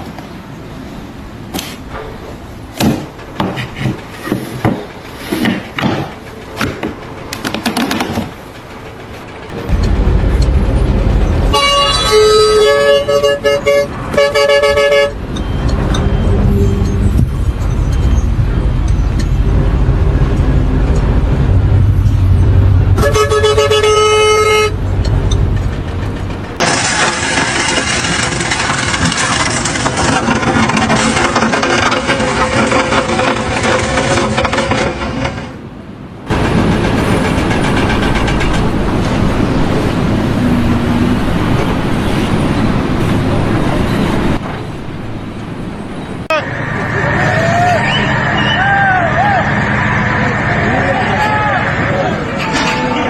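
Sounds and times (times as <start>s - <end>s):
vehicle engine rumbling: 0.0s - 53.0s
horn blast: 9.5s - 15.2s, 22.7s - 24.8s.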